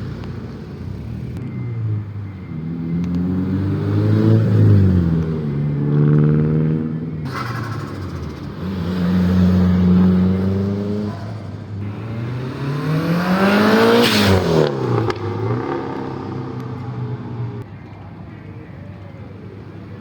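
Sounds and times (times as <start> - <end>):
car engine revving: 2.5 - 17.6.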